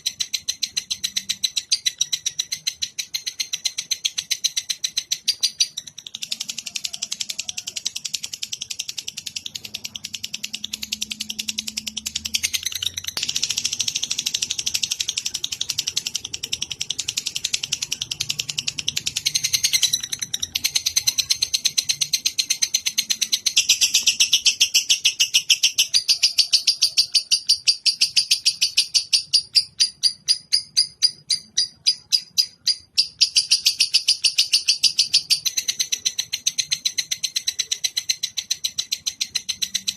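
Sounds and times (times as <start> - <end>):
bird chattering: 0.0 - 39.9.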